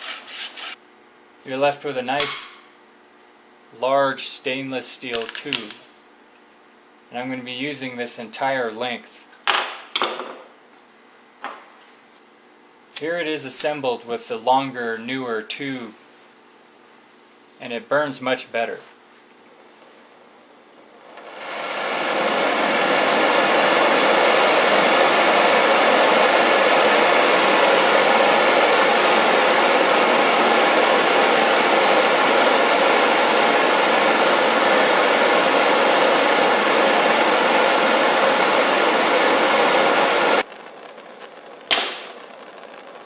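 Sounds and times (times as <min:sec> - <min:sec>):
propane burner flame rushing: 0:20.2 - 0:43.0.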